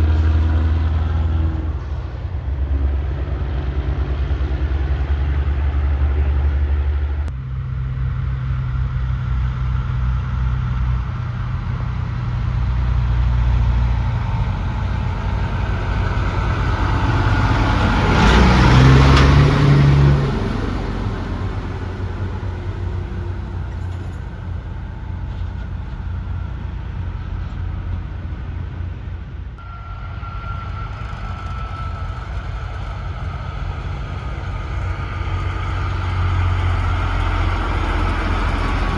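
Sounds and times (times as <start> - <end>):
low engine rumble: 0.0 - 38.9
truck passing by: 0.0 - 38.9.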